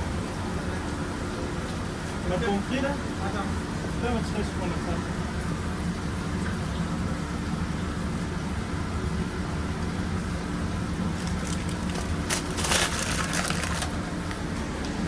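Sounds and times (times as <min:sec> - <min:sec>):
kitchen equipment humming: 0:00.0 - 0:15.0
crackling and clatter: 0:11.1 - 0:14.4.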